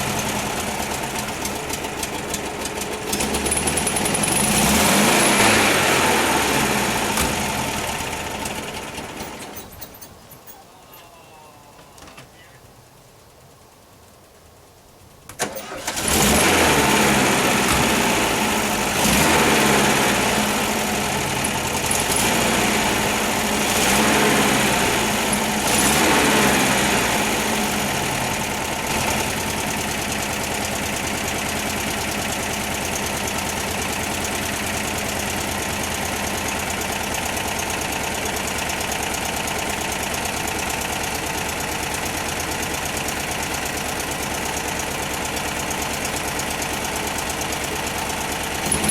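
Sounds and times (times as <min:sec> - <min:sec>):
car engine starting and revving: 0:00.0 - 0:09.5, 0:15.4 - 0:38.3, 0:47.6 - 0:48.9
car engine idling: 0:00.0 - 0:48.9.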